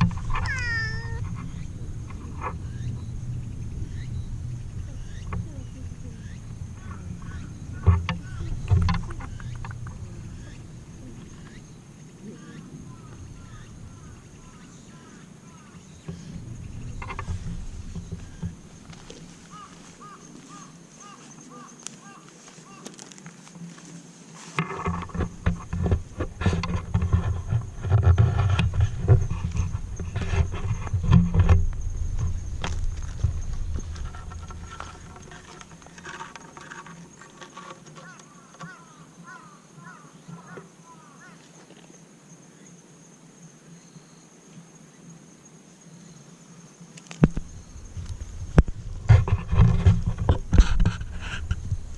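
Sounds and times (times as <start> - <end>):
rumbling and rapid knocks: 0.0 - 11.3, 24.6 - 36.9, 47.2 - 51.9
background hiss: 0.0 - 51.9
high-pitched insect trill: 0.0 - 51.9
high-pitched animal calls: 0.2 - 1.8.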